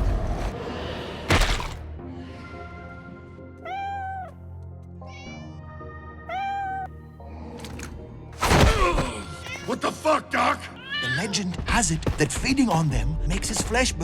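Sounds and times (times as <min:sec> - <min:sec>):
background music: 0:00.0 - 0:14.0
cat meowing: 0:03.6 - 0:04.4, 0:06.3 - 0:06.9.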